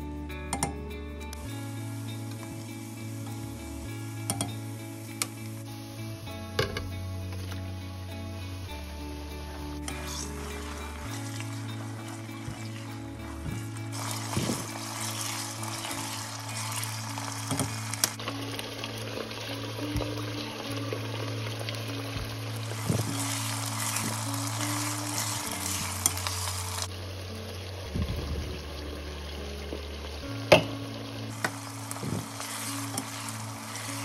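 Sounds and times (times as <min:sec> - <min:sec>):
chicken sizzling in hot oil: 0:01.4 - 0:34.0
spatula stirring in a pot: 0:09.8 - 0:19.8, 0:21.1 - 0:26.9, 0:31.3 - 0:34.0.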